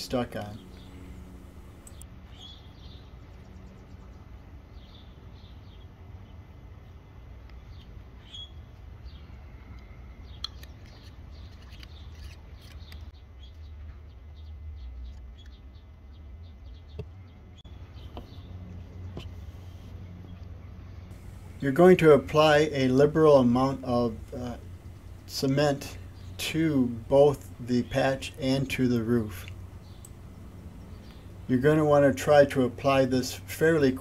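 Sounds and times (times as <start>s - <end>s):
steady low rumble: 0.0s - 2.2s, 17.2s - 34.0s
sharp ticks: 1.7s - 2.0s
high bird chirps: 23.4s - 31.5s.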